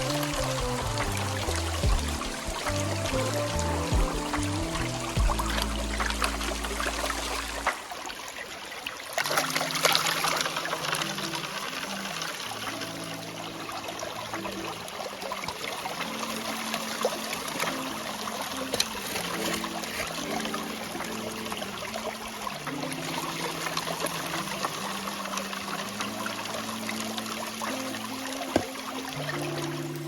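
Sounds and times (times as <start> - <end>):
soft background music: 0.0 - 30.0
water running and trickling: 0.0 - 30.0.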